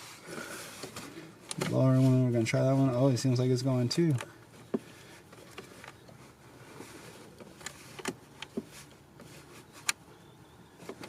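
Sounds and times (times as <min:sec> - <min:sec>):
handling noise: 0:03.9 - 0:11.0.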